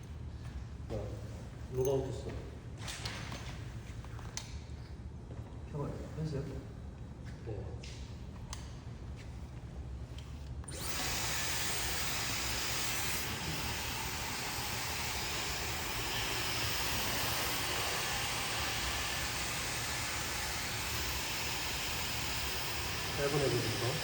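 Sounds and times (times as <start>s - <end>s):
hair dryer blowing: 10.7s - 24.0s.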